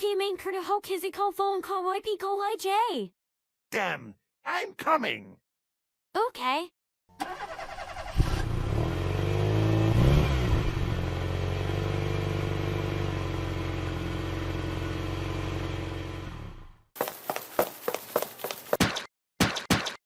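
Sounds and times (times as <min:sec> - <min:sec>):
tractor engine starting and revving: 0:07.1 - 0:16.8.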